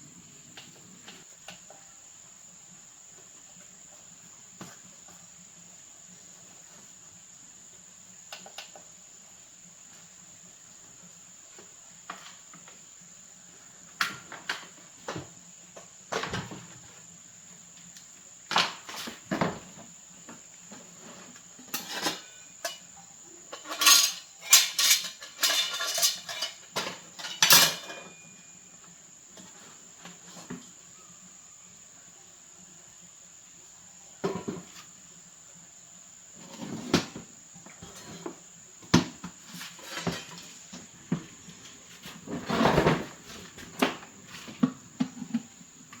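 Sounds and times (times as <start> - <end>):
tools clattering and clinking: 21.7 - 22.9, 23.5 - 28.3, 39.6 - 40.7.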